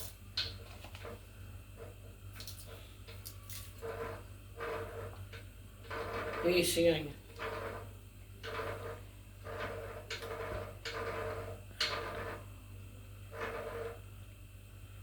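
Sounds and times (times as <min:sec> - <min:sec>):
utensils scraping a pot: 0:03.5 - 0:12.4, 0:13.3 - 0:14.0.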